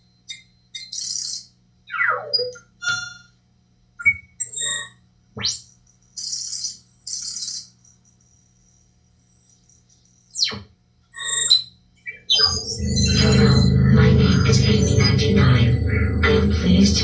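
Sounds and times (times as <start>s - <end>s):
short electronic beeps: 11.2s - 16.6s
high thin electronic whine: 11.2s - 17.0s.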